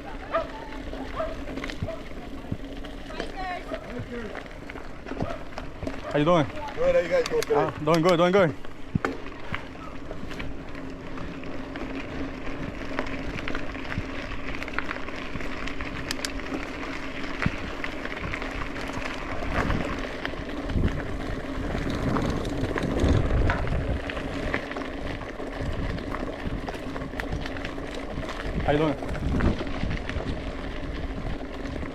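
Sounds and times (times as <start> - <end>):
bike tyres rolling on dirt: 0.0 - 31.9
small rattles and clicks: 0.3 - 31.9
wind rumble on microphone: 17.3 - 31.9.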